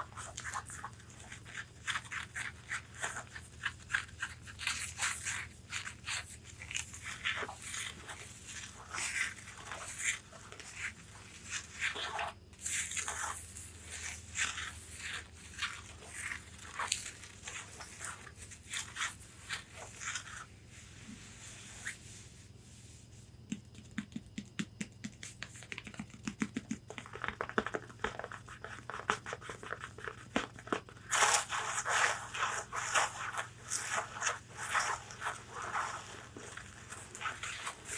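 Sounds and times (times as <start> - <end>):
faint low hum: 0.0 - 37.9
fingernails tapping on fabric: 23.5 - 27.7.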